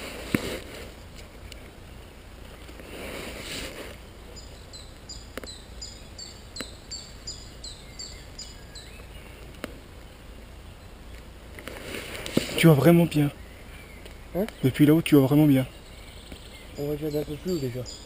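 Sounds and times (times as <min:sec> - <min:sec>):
leaves and undergrowth rustling: 0:00.0 - 0:18.0
songbird singing high notes: 0:04.0 - 0:09.4, 0:12.5 - 0:18.0.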